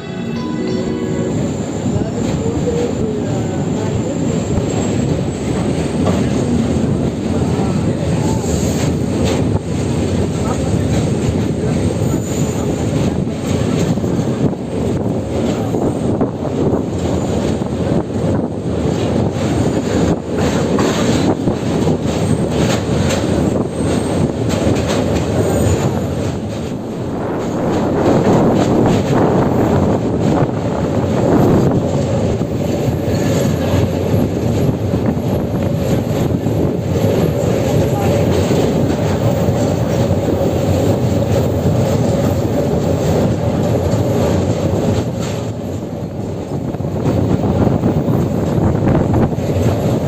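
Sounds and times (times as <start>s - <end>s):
rumble of wheels on track: 0.0s - 50.0s
clicks from rail joints: 42.8s - 47.3s.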